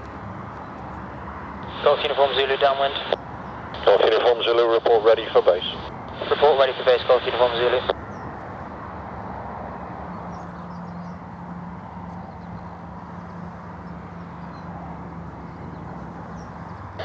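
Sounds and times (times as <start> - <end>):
propeller aircraft engines droning: 0.0 - 17.0.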